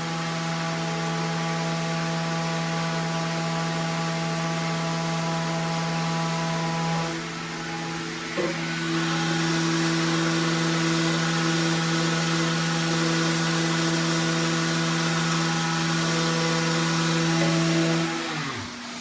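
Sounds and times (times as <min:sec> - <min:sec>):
power tool motor whining: 0:04.6 - 0:19.0.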